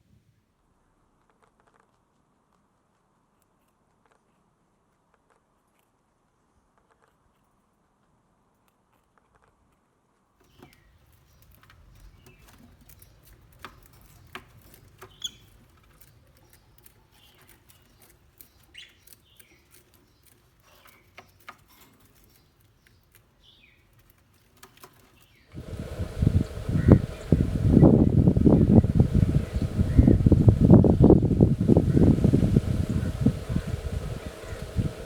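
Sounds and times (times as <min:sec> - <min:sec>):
faint bird chirps: 0:15.0 - 0:23.9, 0:25.2 - 0:35.0
low rumble: 0:25.6 - 0:35.0.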